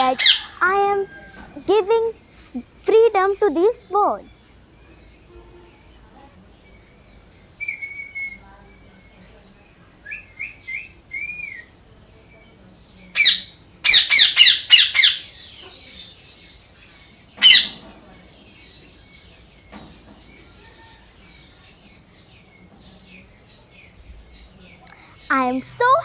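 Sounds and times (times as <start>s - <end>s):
parrots squawking harshly: 0.0s - 1.4s, 13.2s - 16.0s, 17.4s - 17.9s
parrots chirping: 0.0s - 26.0s.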